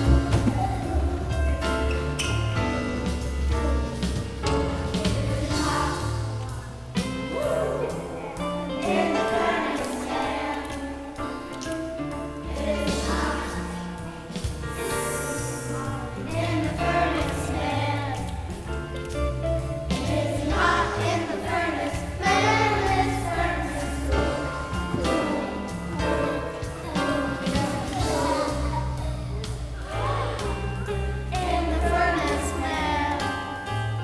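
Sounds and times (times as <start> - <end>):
drum hits: 0.0 - 8.1
choir singing: 0.0 - 11.6, 12.3 - 18.7, 19.8 - 34.0
bass notes: 0.0 - 34.0.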